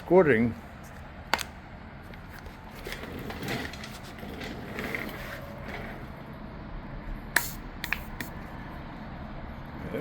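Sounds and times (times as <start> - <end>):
foam gun sputtering and hissing: 7.4 - 8.4.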